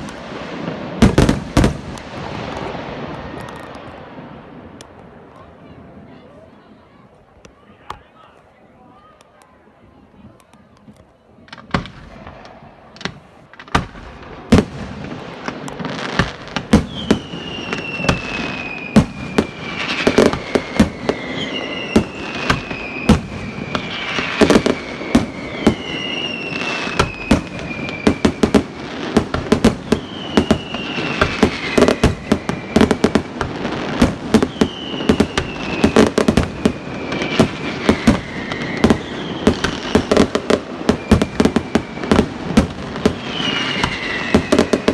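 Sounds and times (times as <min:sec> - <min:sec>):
fireworks bangs and crackle: 0:00.0 - 0:06.2, 0:11.4 - 0:44.9
falling firework whistles: 0:16.1 - 0:44.9.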